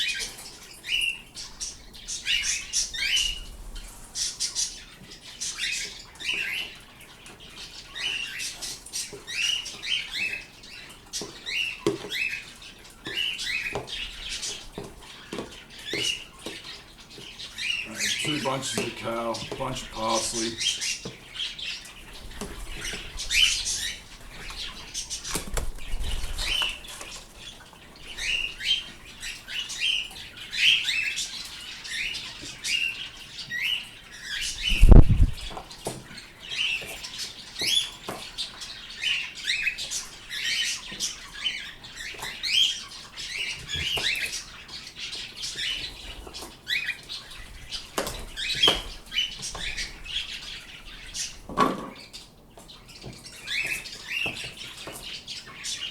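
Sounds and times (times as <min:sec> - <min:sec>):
birds chirping: 0:00.0 - 0:55.9
wings rustling: 0:21.9 - 0:28.8, 0:34.4 - 0:36.0.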